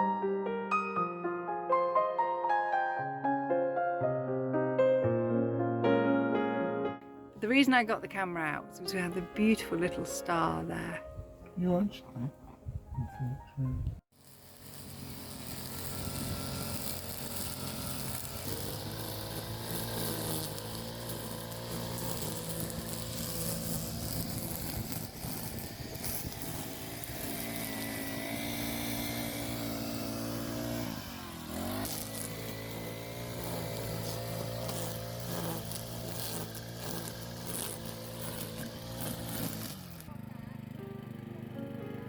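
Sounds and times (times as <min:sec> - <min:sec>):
small petrol engine running: 0:14.1 - 0:42.0.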